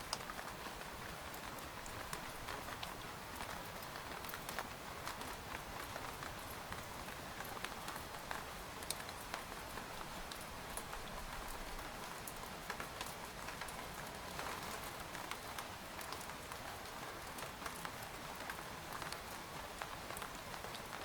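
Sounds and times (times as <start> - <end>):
rain pattering on a tent: 0.0 - 21.0.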